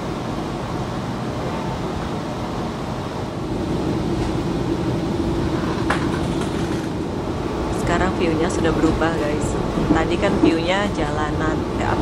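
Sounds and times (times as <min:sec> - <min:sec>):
steady hum: 0:00.0 - 0:12.0
train rumbling: 0:00.0 - 0:12.0.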